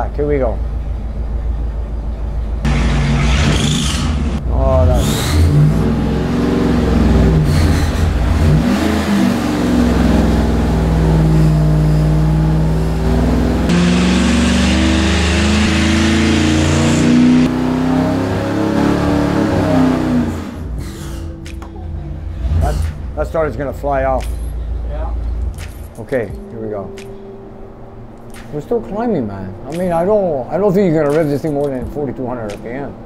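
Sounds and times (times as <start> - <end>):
engine revving at full throttle: 2.6 - 20.8.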